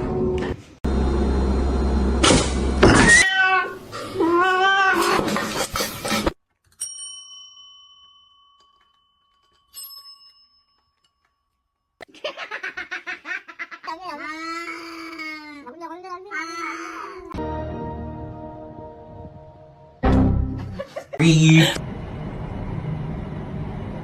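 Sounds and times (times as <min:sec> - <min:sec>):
cat meowing: 0:03.0 - 0:05.2
small bell ringing: 0:06.7 - 0:11.9.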